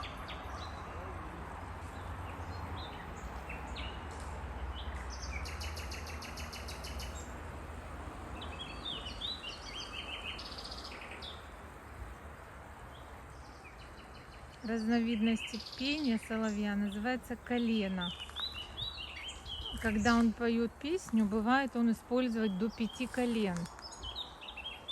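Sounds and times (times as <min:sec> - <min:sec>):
nightingale singing: 0:01.8 - 0:07.4, 0:08.3 - 0:11.6, 0:12.9 - 0:24.9.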